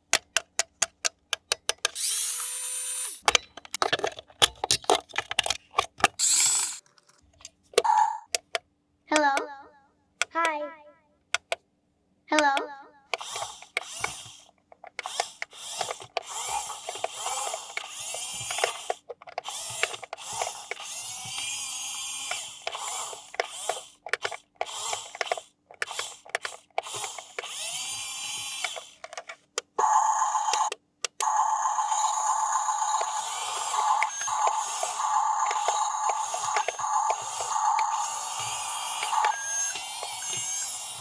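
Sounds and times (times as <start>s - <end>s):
rc toy motor whirring: 2.0s - 3.3s, 6.2s - 6.8s, 13.1s - 29.1s, 29.8s - 41.0s.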